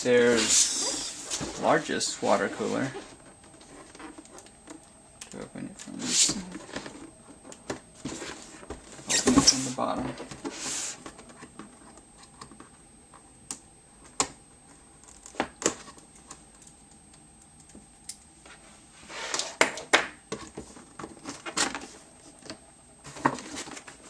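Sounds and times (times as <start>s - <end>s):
cardboard scraping: 0.1s - 4.4s, 8.0s - 12.0s.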